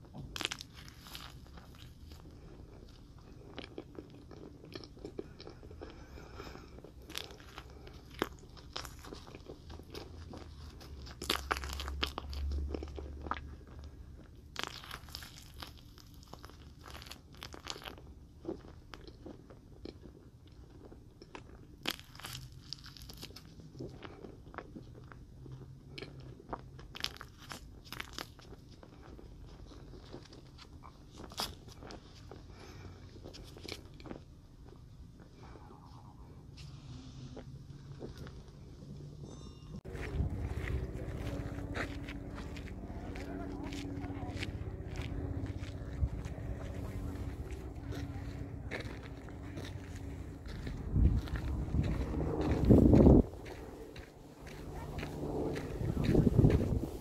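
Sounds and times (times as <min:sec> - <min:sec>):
biting and chewing marshmallow: 0:00.0 - 0:39.2, 0:39.8 - 0:56.8.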